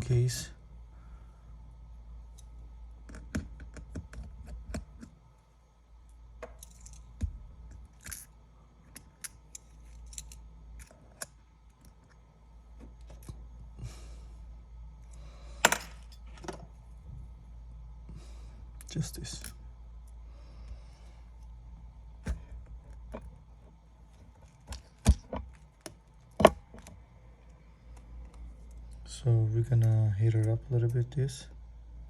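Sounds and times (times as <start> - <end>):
small parts being handled: 6.4 - 13.4.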